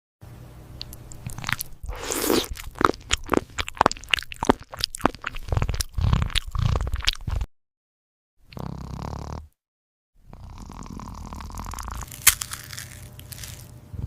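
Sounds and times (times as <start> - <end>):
cat crunching food: 0.8 - 7.5, 11.4 - 13.8.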